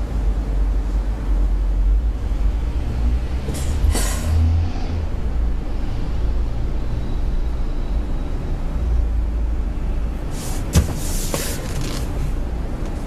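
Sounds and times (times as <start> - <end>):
car engine rumble: 0.0 - 13.0.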